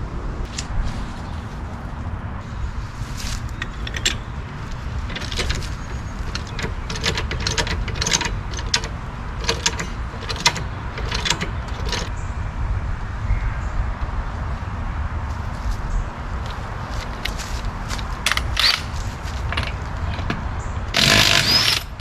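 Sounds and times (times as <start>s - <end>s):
steady low rumble: 0.0s - 22.0s
metallic clicks and clinks: 3.6s - 12.1s.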